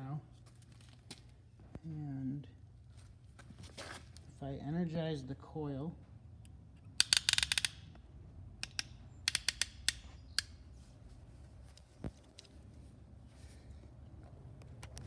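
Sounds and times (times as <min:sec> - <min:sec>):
cable clips clicking: 0:07.0 - 0:08.0, 0:08.6 - 0:10.6.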